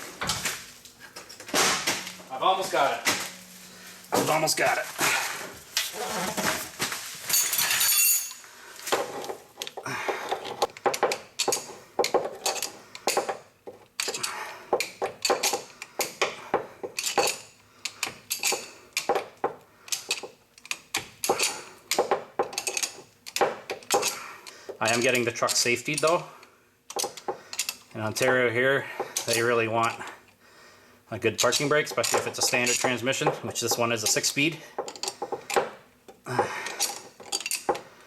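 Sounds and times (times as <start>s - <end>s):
hand tools clinking on steel: 7.3s - 8.5s, 36.3s - 37.8s.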